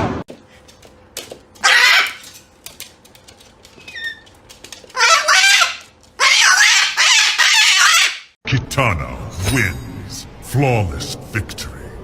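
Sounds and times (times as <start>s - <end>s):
chicken calling loudly: 1.6s - 2.3s, 4.9s - 8.3s.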